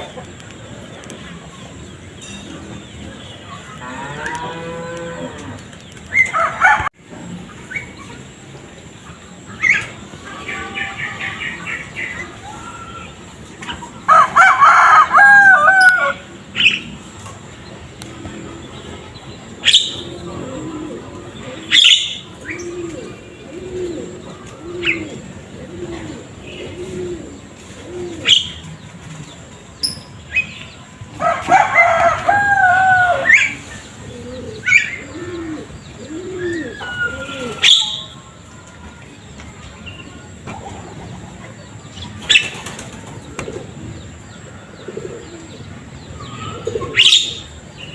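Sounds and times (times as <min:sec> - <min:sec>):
rooster crowing: 0:06.3 - 0:06.9, 0:14.0 - 0:16.3, 0:31.2 - 0:33.6
low cooing notes: 0:20.0 - 0:29.2, 0:32.8 - 0:38.1.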